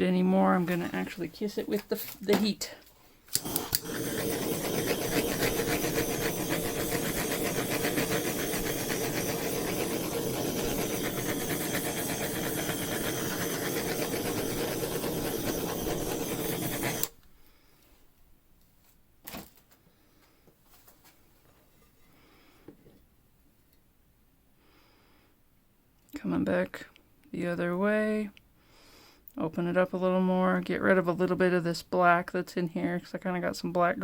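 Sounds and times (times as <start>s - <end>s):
heat gun fan blowing: 3.3s - 17.2s.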